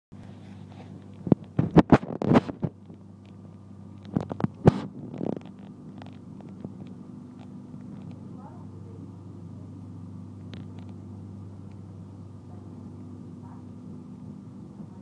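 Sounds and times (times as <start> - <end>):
moving train humming: 0.2 - 15.0
sharp clicks and knocks: 1.0 - 8.2.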